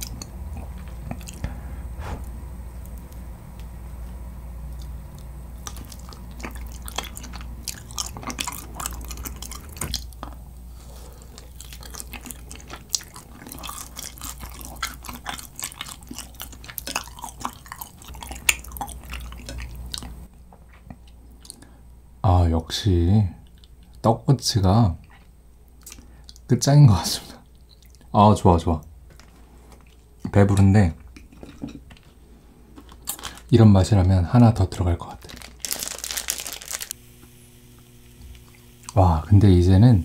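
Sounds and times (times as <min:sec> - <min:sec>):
person chewing food: 0:00.0 - 0:01.6, 0:04.7 - 0:21.7, 0:31.0 - 0:33.5, 0:35.2 - 0:37.0.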